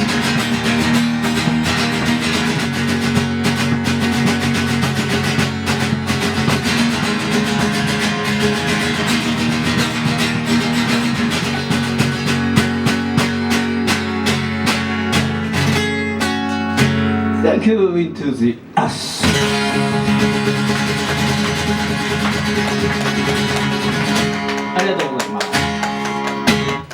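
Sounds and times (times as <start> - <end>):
strummed guitars: 0.0 - 26.9
live band music: 19.1 - 26.9.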